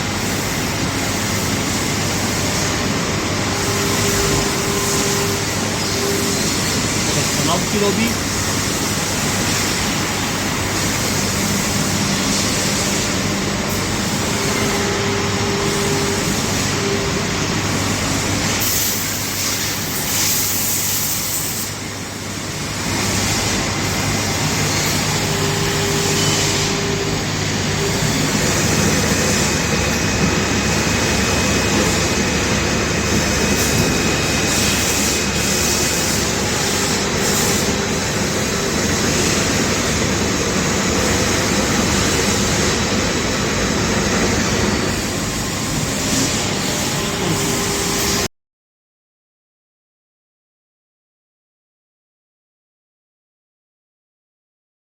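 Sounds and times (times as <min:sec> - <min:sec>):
lathe machining: 0:00.0 - 0:48.3.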